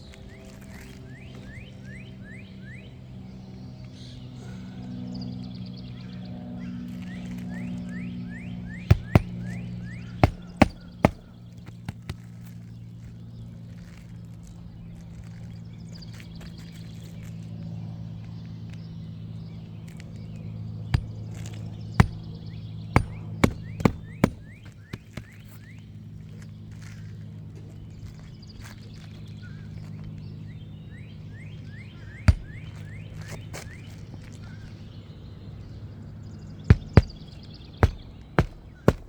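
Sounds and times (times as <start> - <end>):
hammer striking roofing nails: 8.9 - 9.6, 10.2 - 12.2, 21.0 - 22.3, 23.0 - 25.6, 32.3 - 32.8, 36.7 - 39.0.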